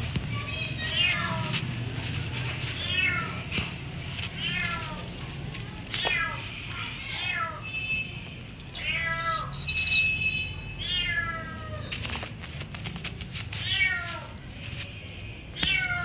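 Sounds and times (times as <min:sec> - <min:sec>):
cat meowing: 0:02.8 - 0:03.5, 0:06.0 - 0:07.7, 0:08.8 - 0:10.2, 0:10.8 - 0:12.1, 0:13.6 - 0:14.4, 0:15.6 - 0:16.0.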